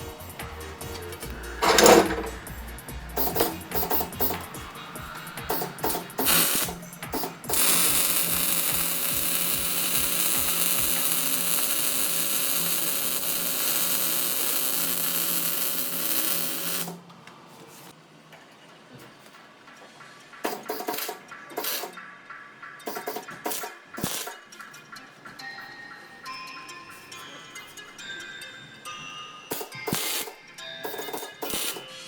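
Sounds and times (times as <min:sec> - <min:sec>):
music with a beat: 0:00.0 - 0:13.6
power tool hissing: 0:00.8 - 0:17.0.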